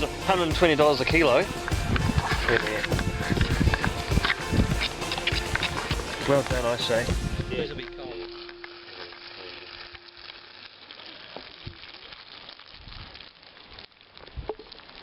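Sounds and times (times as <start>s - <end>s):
food sizzling in a pan: 0.0s - 15.0s
small crackles and pops: 1.0s - 15.0s.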